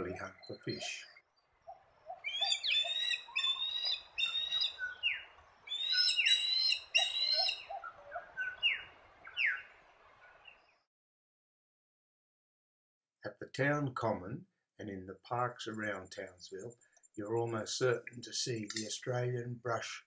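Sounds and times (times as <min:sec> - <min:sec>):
osprey whistled calls: 0:00.4 - 0:09.7.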